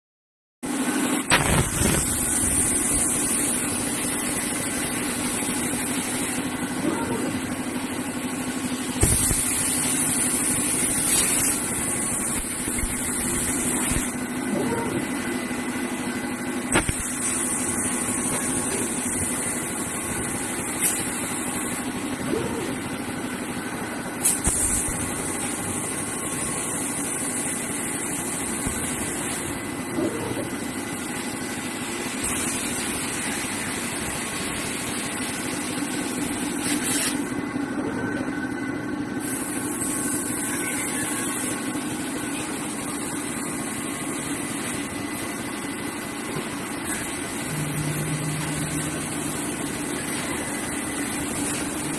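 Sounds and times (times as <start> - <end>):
laser cutter high hiss: 1.1 - 37.4, 39.2 - 51.9
machine hum: 41.6 - 51.9.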